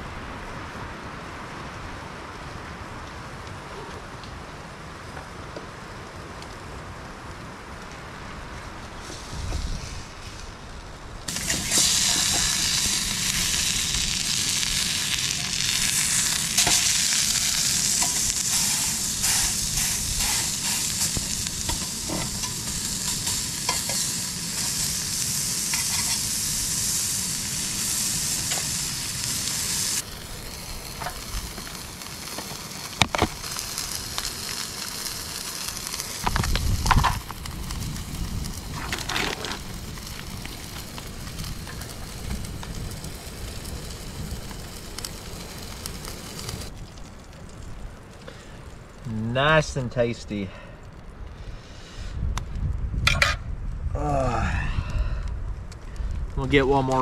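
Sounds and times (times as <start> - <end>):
meat sizzling in a frying pan: 11.3 - 48.4.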